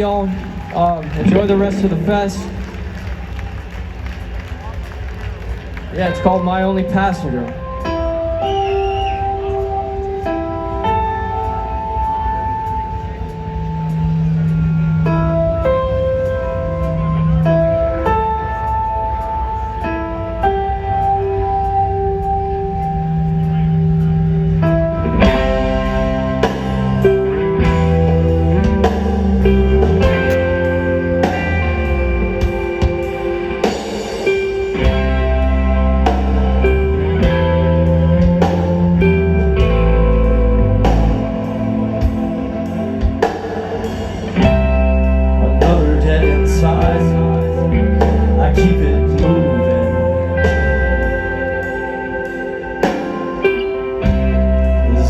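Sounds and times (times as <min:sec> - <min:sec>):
electric guitar chords: 0:00.0 - 0:03.8, 0:05.9 - 0:55.0
drums: 0:00.0 - 0:55.0
bass line: 0:21.0 - 0:55.0.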